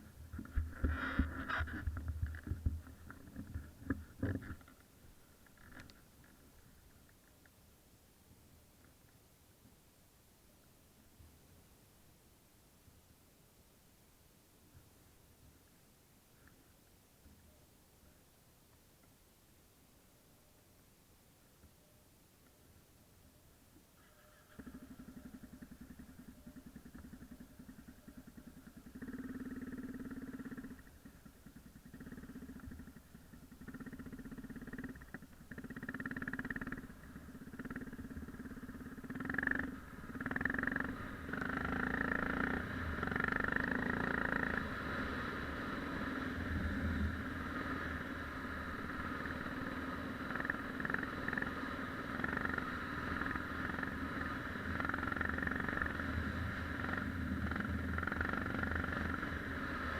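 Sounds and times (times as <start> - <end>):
motorcycle engine revving: 24.4 - 59.9.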